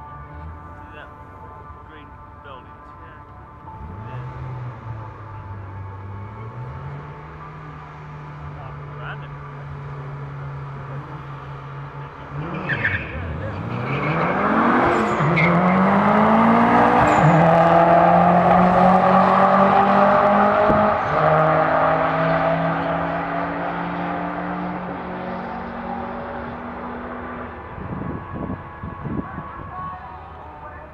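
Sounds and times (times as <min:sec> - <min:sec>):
car engine at full throttle: 0:00.0 - 0:30.9
low thumps: 0:19.9 - 0:21.4.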